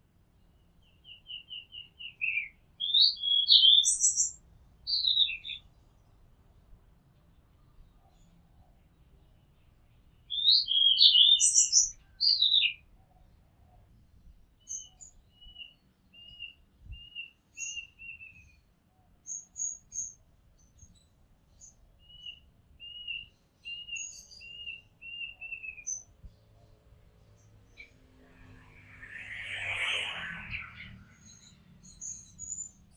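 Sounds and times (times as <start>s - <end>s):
bird singing whistled notes: 0.8s - 5.6s, 10.3s - 12.8s, 14.6s - 18.6s, 19.2s - 26.1s, 28.7s - 32.9s.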